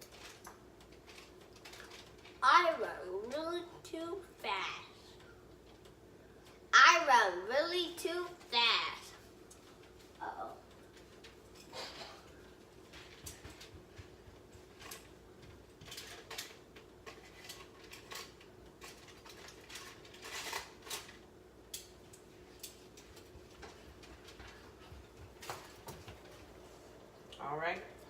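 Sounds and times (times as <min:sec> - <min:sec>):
faint steady hum: 0:00.0 - 0:28.0
utensil clinking on pan and foil: 0:15.9 - 0:21.9.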